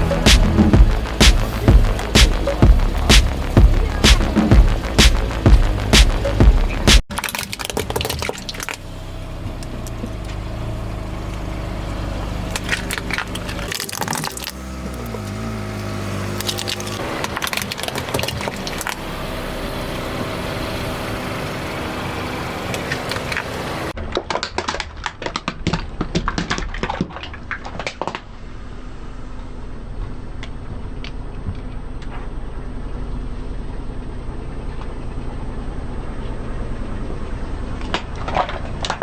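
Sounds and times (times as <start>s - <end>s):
car engine running: 0.0s - 24.0s, 27.4s - 39.0s
tyres crushing objects: 12.5s - 15.1s, 22.8s - 28.3s.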